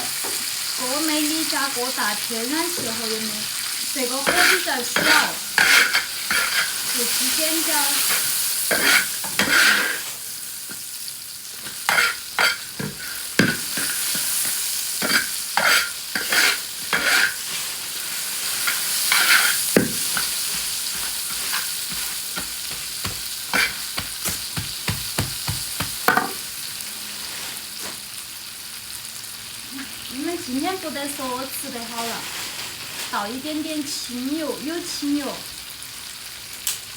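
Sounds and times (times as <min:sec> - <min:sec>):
oil sizzling in a wok: 0:00.0 - 0:36.9
metal spatula scraping a pan: 0:04.0 - 0:10.8, 0:11.6 - 0:24.7.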